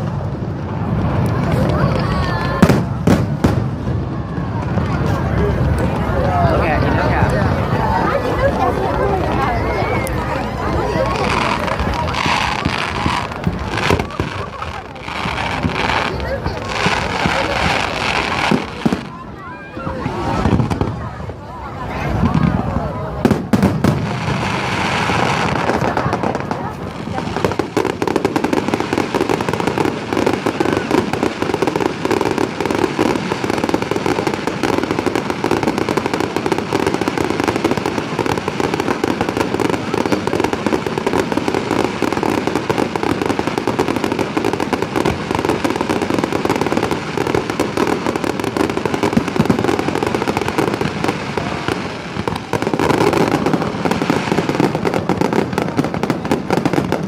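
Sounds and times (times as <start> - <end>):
fireworks bursts and crackling: 0.0 - 57.0.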